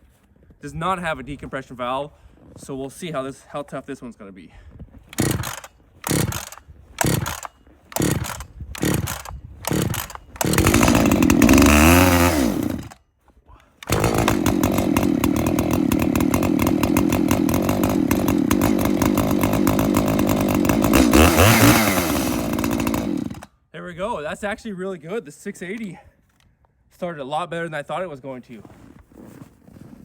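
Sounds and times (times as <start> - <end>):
chainsaw engine running: 5.1 - 13.0, 13.8 - 23.5
chainsaw recoil pulls: 5.1 - 13.0, 13.7 - 23.5.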